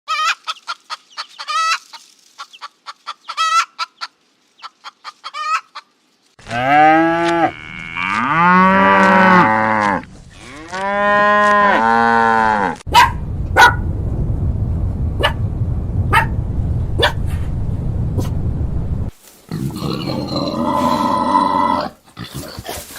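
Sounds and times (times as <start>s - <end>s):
chicken clucking: 0.1s - 6.0s
cow mooing: 6.4s - 12.8s.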